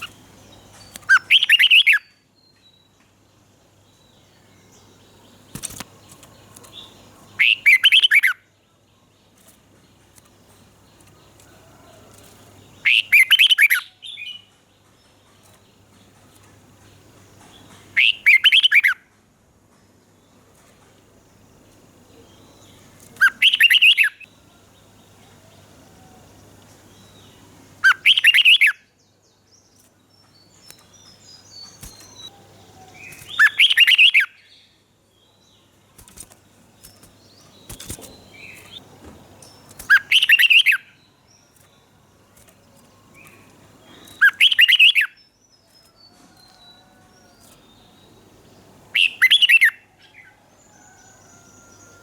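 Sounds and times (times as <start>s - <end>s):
bird song phrases: 0.0s - 52.0s
faint bird chirps: 22.1s - 38.8s, 39.4s - 48.2s.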